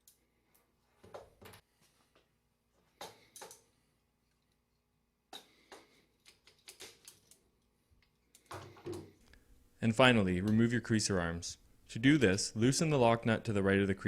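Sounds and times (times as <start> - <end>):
metal tools clicking and knocking: 5.3 - 9.1.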